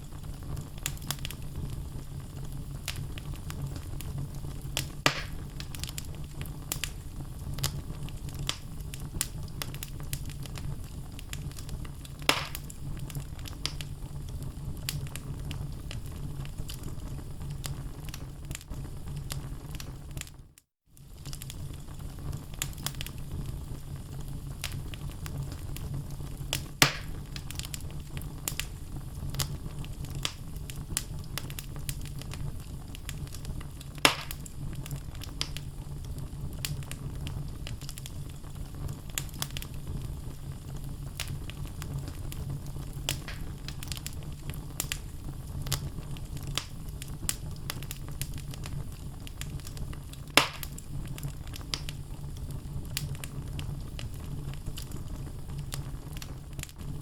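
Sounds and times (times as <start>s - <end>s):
fire crackling: 0.0s - 57.0s
low rumble of flames: 0.0s - 57.0s
sharp pops from burning logs: 0.4s - 1.7s, 2.8s - 7.0s, 7.6s - 13.9s, 21.1s - 23.2s, 24.6s - 35.6s, 36.6s - 40.1s, 41.1s - 52.2s, 52.9s - 55.0s.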